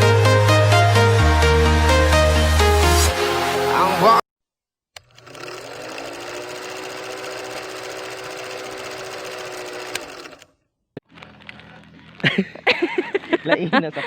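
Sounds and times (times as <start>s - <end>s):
small motor whirring: 5.0s - 10.5s.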